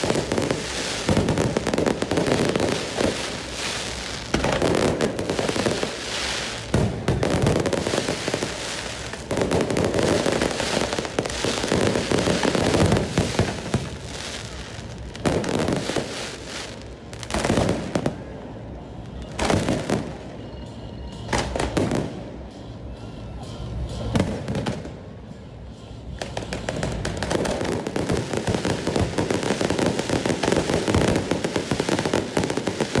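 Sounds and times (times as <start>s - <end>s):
fireworks bangs and crackles: 0.0s - 20.4s, 21.1s - 22.5s, 23.9s - 25.3s, 26.1s - 33.0s.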